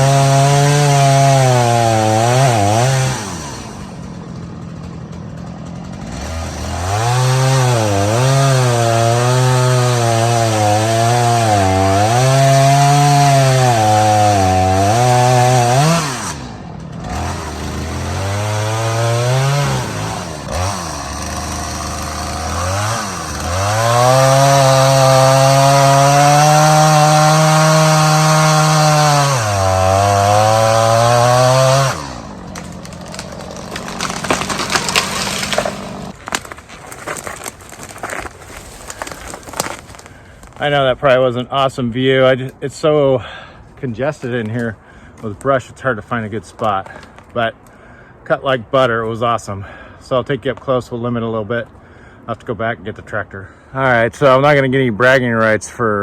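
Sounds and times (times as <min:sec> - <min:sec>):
chainsaw cutting wood: 0:00.0 - 0:40.7.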